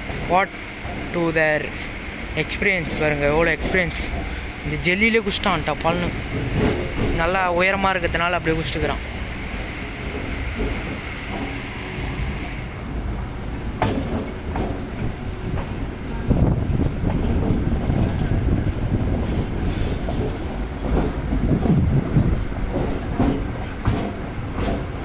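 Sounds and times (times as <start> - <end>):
rail clicks: 0.0 - 25.0
train rumbling on rails: 0.0 - 25.0.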